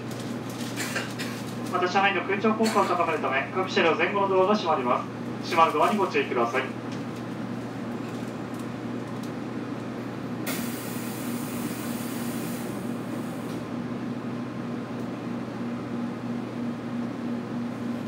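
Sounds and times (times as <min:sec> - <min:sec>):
train equipment hum: 0:00.0 - 0:18.0
compressed air hiss: 0:10.5 - 0:13.5.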